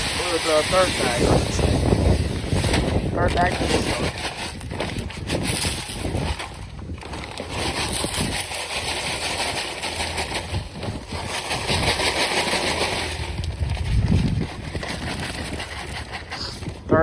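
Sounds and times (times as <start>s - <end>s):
granules pouring hiss: 0.0s - 2.0s.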